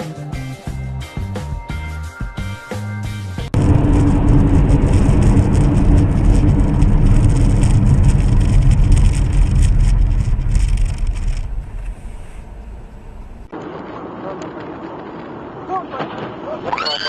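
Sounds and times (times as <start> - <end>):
vehicle rumble: 3.5 - 16.5
crackling noise: 3.5 - 17.0.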